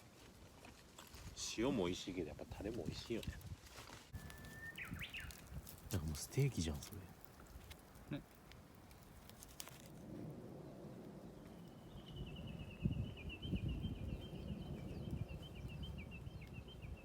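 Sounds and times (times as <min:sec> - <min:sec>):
bird chirping: 0:04.2 - 0:07.2, 0:11.4 - 0:17.0.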